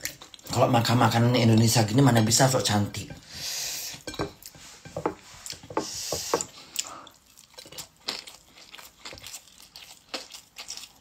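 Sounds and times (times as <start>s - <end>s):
person chewing food: 0.0s - 0.5s, 3.8s - 11.0s.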